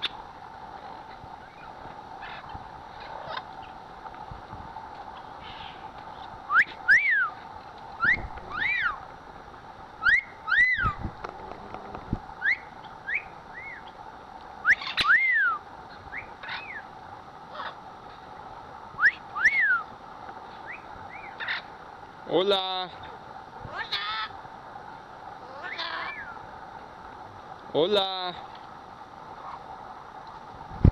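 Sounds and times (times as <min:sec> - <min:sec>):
parrots whistling: 0:06.5 - 0:07.3, 0:08.0 - 0:09.0, 0:12.4 - 0:13.8, 0:14.6 - 0:16.8, 0:19.0 - 0:19.9, 0:25.4 - 0:26.4.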